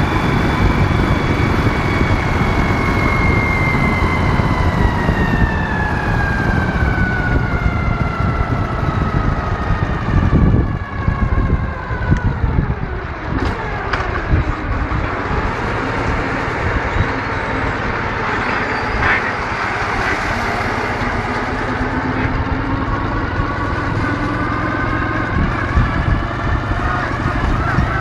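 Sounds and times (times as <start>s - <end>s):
motorcycle engine running: 12.2s - 28.0s.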